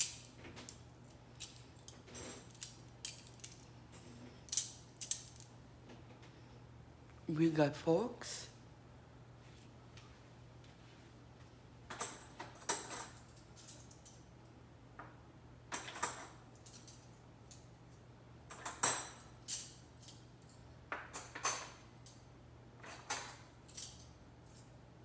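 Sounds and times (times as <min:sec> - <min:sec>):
metal forks clinking: 0:01.4 - 0:05.4.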